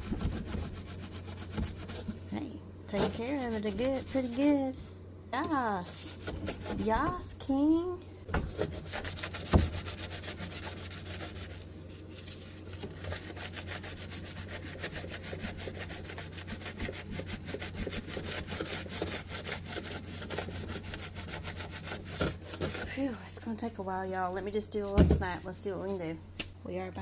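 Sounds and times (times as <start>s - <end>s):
sponge scrubbing a surface: 0.0s - 2.2s, 2.9s - 4.8s, 5.8s - 7.3s, 8.5s - 23.0s
steady low hum: 0.0s - 27.0s.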